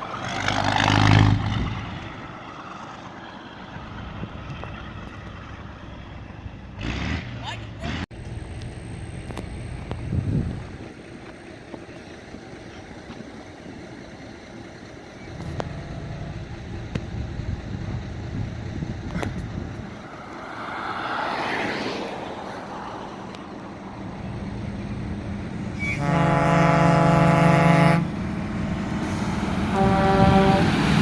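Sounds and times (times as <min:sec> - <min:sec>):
truck engine running: 0:00.0 - 0:20.4, 0:23.0 - 0:31.0
truck air horn blast: 0:25.7 - 0:28.2, 0:29.0 - 0:31.0
rushing noise: 0:28.0 - 0:31.0.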